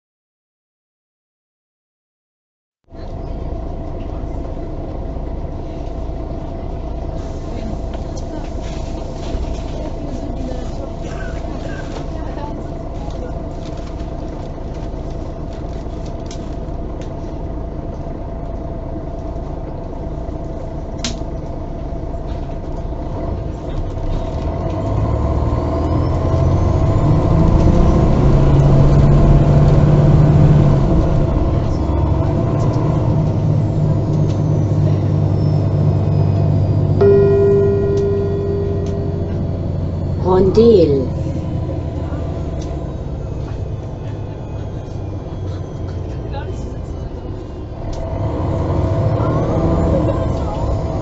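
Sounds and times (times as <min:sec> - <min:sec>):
bus engine rumble: 0:02.9 - 0:51.0
chime tone: 0:35.3 - 0:41.3.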